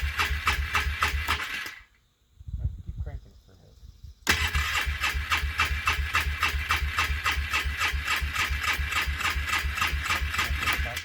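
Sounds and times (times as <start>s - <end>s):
engine cranking by starter: 0.0s - 1.9s, 4.2s - 11.0s.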